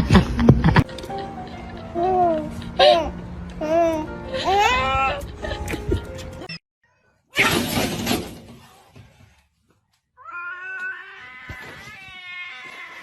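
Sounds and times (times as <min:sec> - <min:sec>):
cat yowling: 0:10.2 - 0:13.0.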